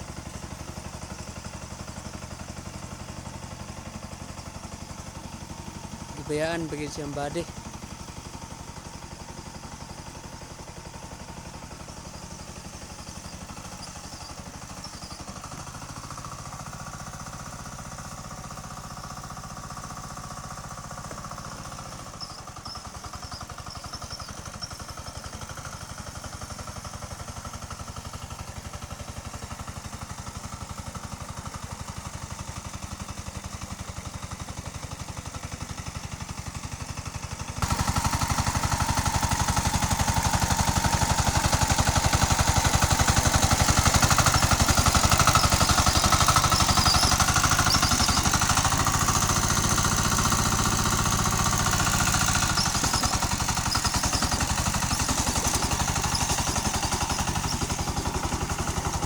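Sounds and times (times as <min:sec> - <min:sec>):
tractor engine pulsing: 0:05.4 - 0:07.6, 0:37.6 - 0:59.0.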